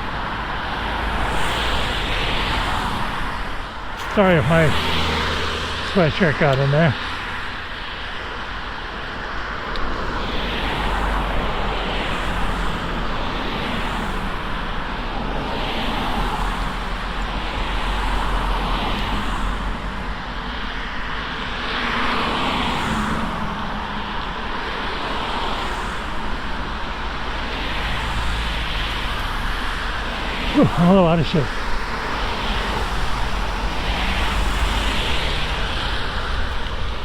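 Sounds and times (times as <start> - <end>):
wind rushing over microphone: 0.0 - 37.0.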